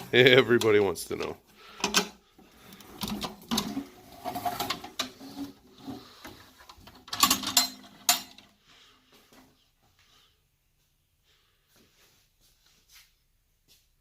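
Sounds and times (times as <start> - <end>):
metal clicks and clanks: 0.5 - 5.5, 6.6 - 8.5.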